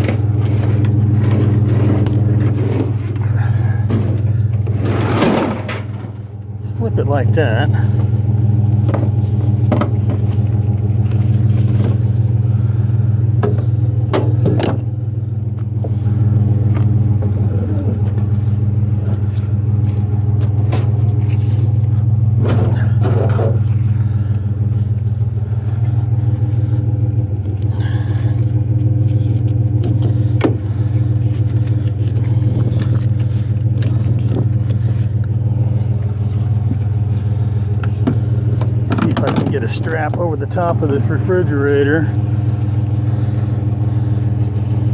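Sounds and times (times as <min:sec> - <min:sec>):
truck engine idling: 0:00.0 - 0:44.9
appliance knocks and clatters: 0:03.8 - 0:06.4, 0:08.8 - 0:10.6, 0:13.4 - 0:14.9, 0:22.4 - 0:23.7, 0:37.8 - 0:41.5.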